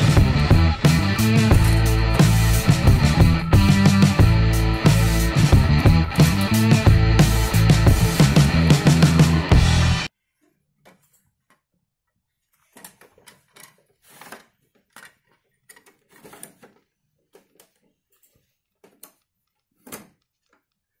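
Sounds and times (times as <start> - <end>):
toy truck plastic clicks and rattles: 12.6 - 20.9.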